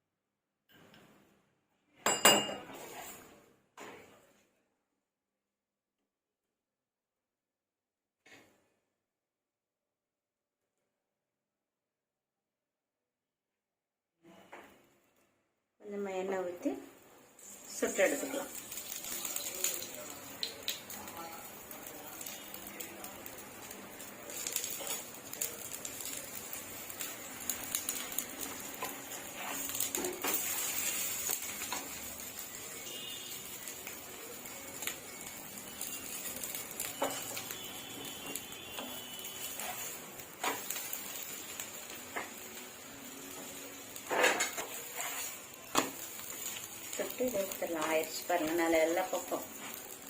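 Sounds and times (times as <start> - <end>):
flatbread sizzling in oil: 16.4 - 50.0.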